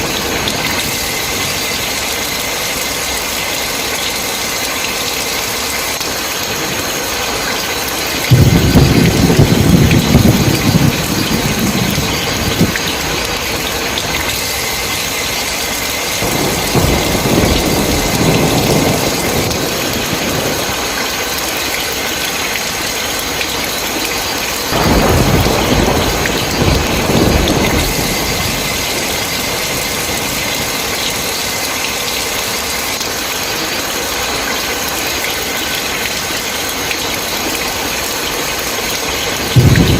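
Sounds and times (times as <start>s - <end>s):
heavy rain: 0.0s - 39.9s
thunder rumbling: 7.8s - 23.8s, 24.4s - 33.1s, 38.4s - 39.9s.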